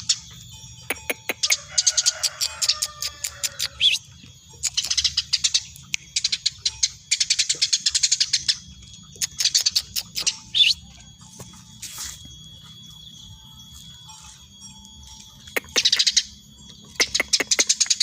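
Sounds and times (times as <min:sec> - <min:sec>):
sparrow chirping rapidly: 0:03.6 - 0:11.0, 0:15.4 - 0:18.0.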